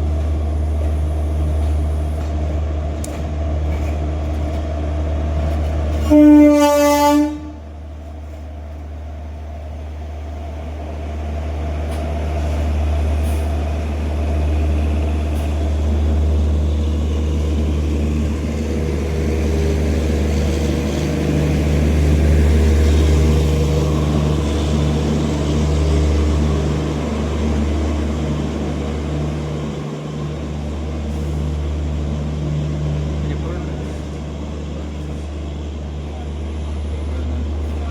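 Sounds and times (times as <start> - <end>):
train rumbling past: 0.0 - 37.9.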